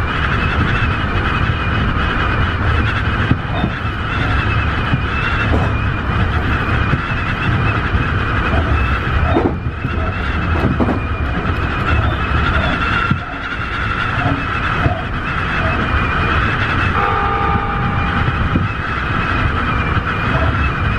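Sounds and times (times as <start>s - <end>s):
electric train rumble: 0.0s - 20.9s
high steady whine: 0.0s - 20.9s
wheel knocks: 3.2s - 7.7s, 8.5s - 13.3s.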